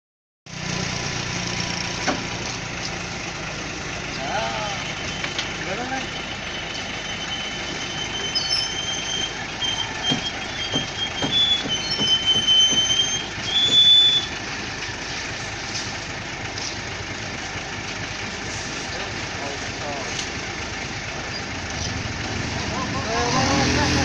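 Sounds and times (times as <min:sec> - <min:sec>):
concrete mixer truck rumbling: 0:00.5 - 0:24.0
high wavering metallic squeal: 0:04.6 - 0:14.4
knocks: 0:10.0 - 0:13.9.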